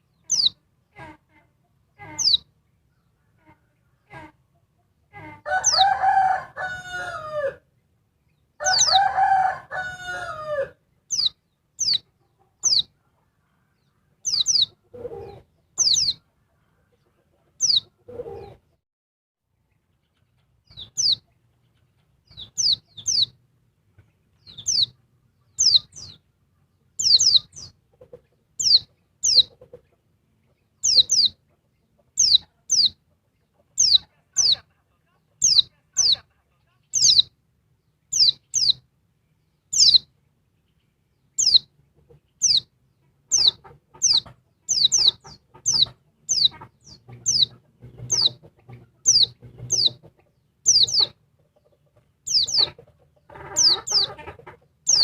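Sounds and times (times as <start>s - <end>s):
bird chirping: 0.0s - 1.2s, 1.9s - 4.3s, 5.0s - 6.1s, 7.8s - 18.7s, 19.6s - 55.0s
rooster crowing: 5.4s - 7.6s, 8.6s - 10.8s.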